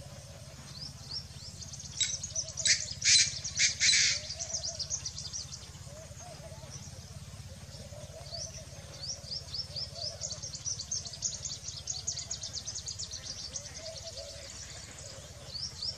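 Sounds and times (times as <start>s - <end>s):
low background rumble: 0.0s - 15.9s.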